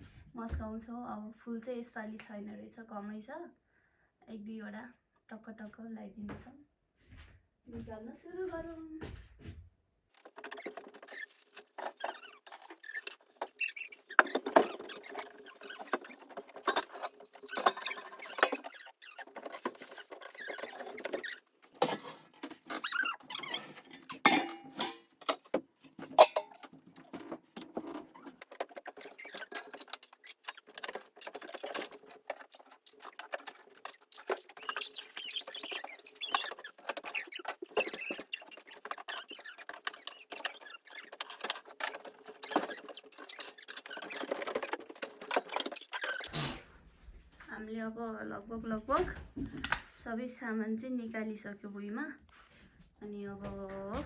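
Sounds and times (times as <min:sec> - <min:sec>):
metal pots clinking and scraping: 0:10.2 - 0:46.8.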